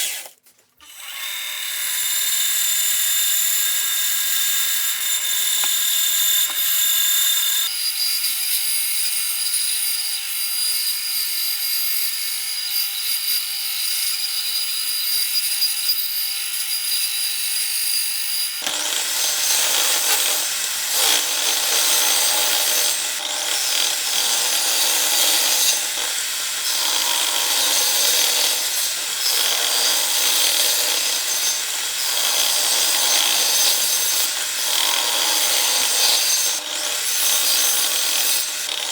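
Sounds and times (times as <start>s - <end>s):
power tool motor whine: 0.0s - 7.9s, 18.6s - 38.9s
wood being cut rasping: 0.0s - 8.8s, 18.6s - 38.9s.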